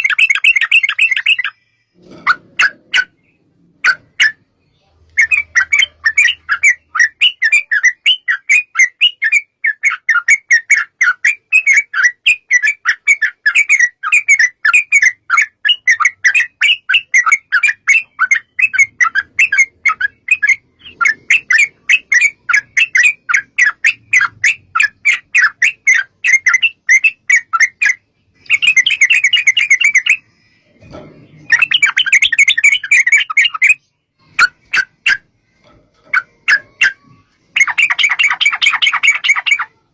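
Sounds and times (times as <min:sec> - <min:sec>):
bird chattering call: 0:36.1 - 0:39.8.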